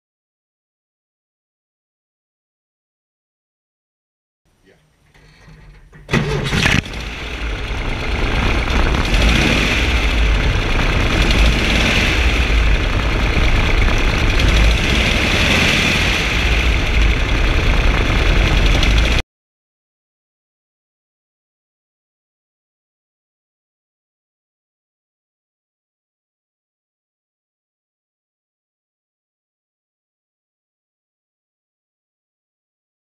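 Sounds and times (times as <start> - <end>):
car engine starting and running: 5.1 - 19.2.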